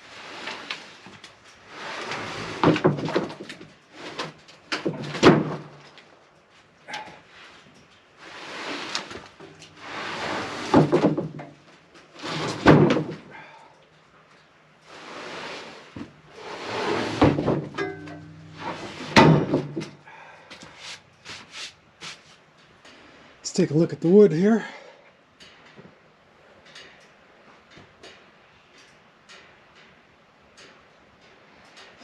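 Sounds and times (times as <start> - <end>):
lumber scraping: 0.0 - 5.7, 8.2 - 13.4, 14.9 - 20.0, 20.6 - 22.4.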